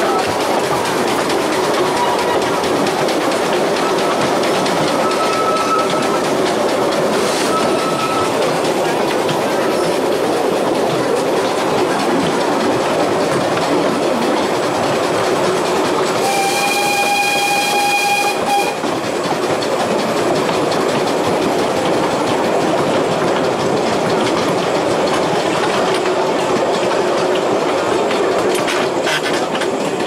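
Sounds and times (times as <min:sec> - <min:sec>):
carriage wheels rumbling on rails: 0:00.0 - 0:30.0
train whistle blast: 0:05.0 - 0:06.1, 0:16.2 - 0:18.9.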